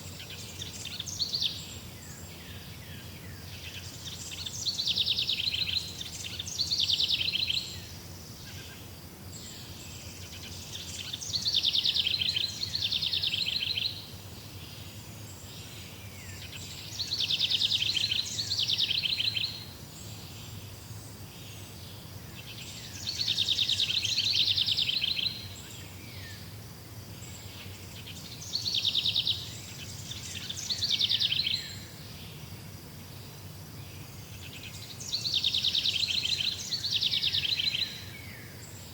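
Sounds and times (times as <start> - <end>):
songbird trilling: 3.6 - 7.8, 10.4 - 14.1, 16.2 - 19.6, 22.4 - 26.4, 27.4 - 32.0, 34.4 - 38.5.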